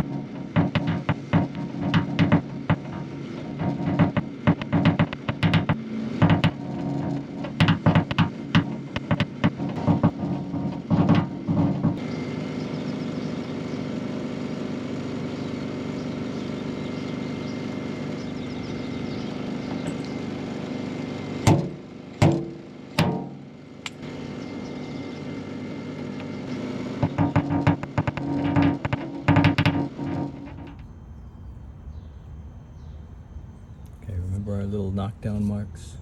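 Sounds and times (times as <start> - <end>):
tools tapping metal panel: 0.0 - 12.0, 21.4 - 24.1, 26.1 - 30.9
loud sharp knocks: 0.0 - 12.1, 21.3 - 31.0
steady hum: 0.0 - 36.0.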